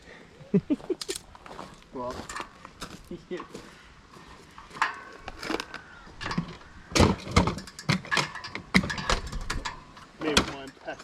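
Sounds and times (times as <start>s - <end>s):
tools knocking and clanking: 6.2s - 10.9s.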